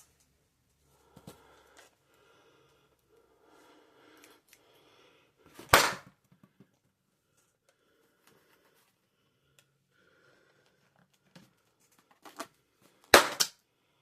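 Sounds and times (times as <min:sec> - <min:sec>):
balloon popping: 0:05.6 - 0:06.2, 0:13.1 - 0:13.5.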